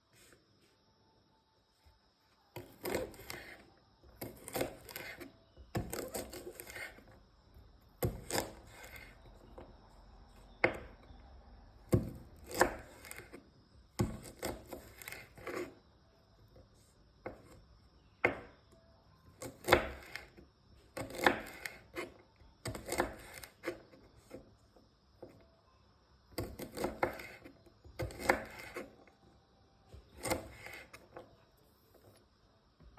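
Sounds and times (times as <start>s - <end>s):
knife cutting beans: 2.6s - 7.2s, 8.0s - 9.6s, 11.9s - 13.4s, 14.0s - 15.8s, 19.4s - 24.5s, 26.4s - 29.1s, 29.9s - 32.2s.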